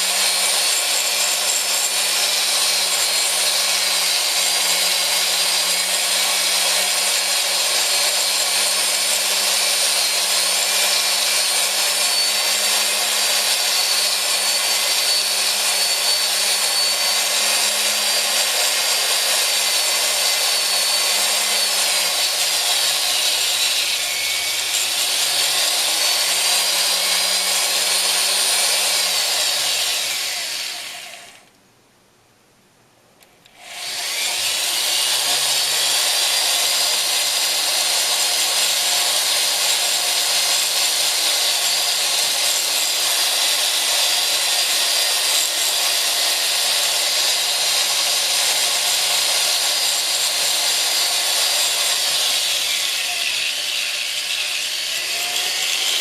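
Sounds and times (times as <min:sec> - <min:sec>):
rotary handpiece motor whirring: 0:07.8 - 0:31.5, 0:33.5 - 0:36.6, 0:50.7 - 0:56.0.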